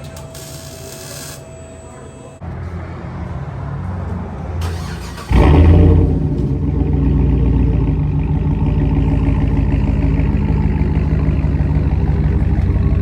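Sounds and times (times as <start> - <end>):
engine rumbling through exhaust: 4.1 - 13.0.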